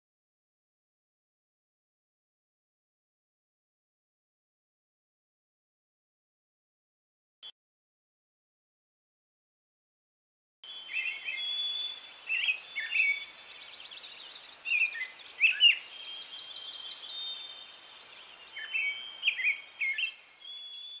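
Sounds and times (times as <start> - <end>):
birds singing: 10.6 - 21.0.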